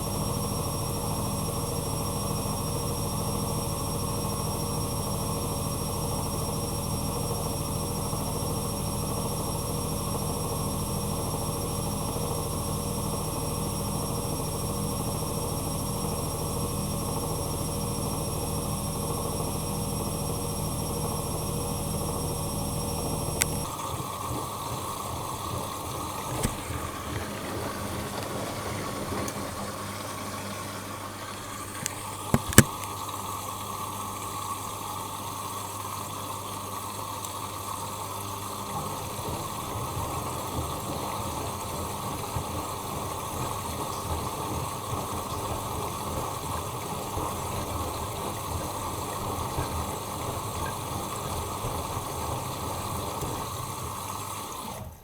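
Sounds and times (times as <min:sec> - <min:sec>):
washing machine motor hum: 0:00.0 - 0:55.0
water rushing in washing machine: 0:00.0 - 0:55.0
sharp clicks: 0:31.8 - 0:32.9.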